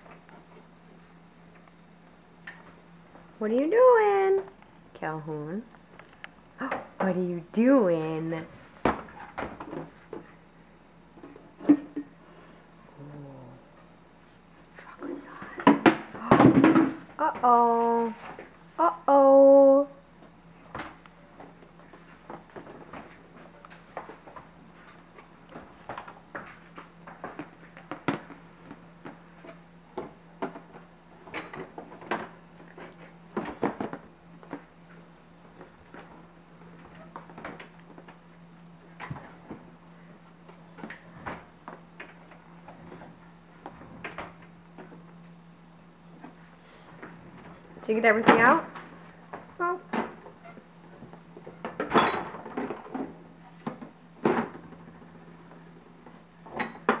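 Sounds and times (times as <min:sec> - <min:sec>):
refrigerator hum: 0:00.0 - 0:57.0
bottles clattering in refrigerator: 0:51.5 - 0:54.8.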